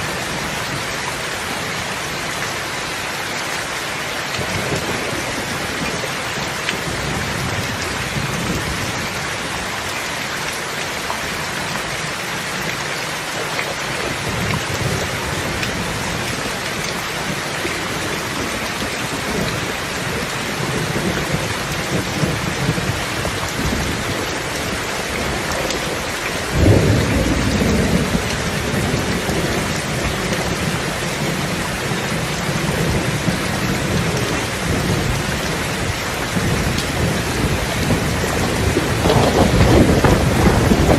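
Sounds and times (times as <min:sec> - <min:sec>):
steady rain: 0:00.0 - 0:40.9
thunder rumbling: 0:14.1 - 0:40.9
loud thunderclap: 0:26.5 - 0:31.6, 0:36.4 - 0:40.9.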